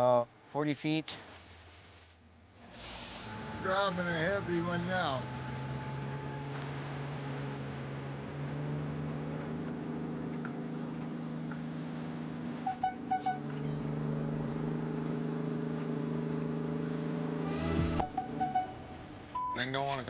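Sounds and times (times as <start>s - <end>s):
engine running under load: 2.6s - 19.3s.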